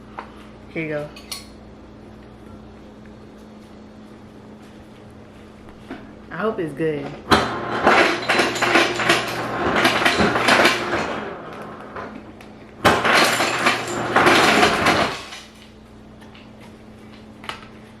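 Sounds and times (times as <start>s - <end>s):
low steady hum: 0.0s - 18.0s
ice cubes clattering into bowl: 7.8s - 11.2s, 12.8s - 15.5s.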